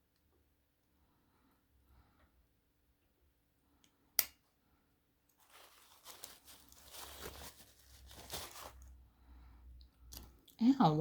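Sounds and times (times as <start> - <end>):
knife rustling and scraping: 5.4 - 8.9.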